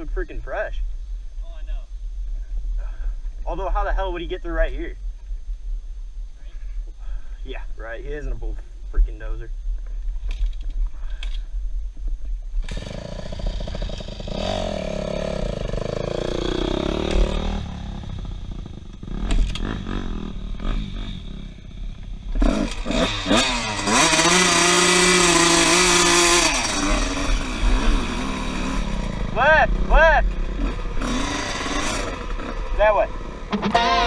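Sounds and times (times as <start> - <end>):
dirt bike engine revving: 12.6 - 21.6, 22.3 - 32.8.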